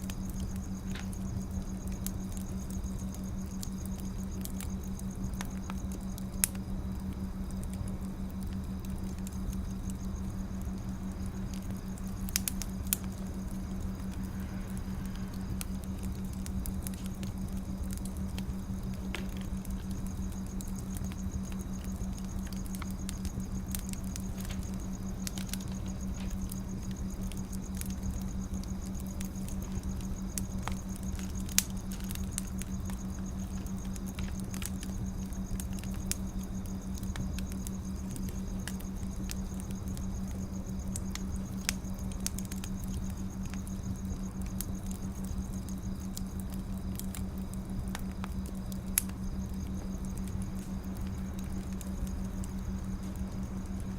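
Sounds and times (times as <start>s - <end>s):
wood fire crackling: 0.0s - 53.9s
low hum: 6.2s - 36.4s.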